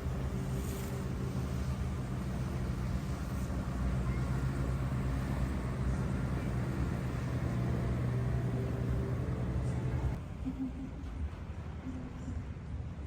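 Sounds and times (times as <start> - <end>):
engine droning: 0.0 - 10.2.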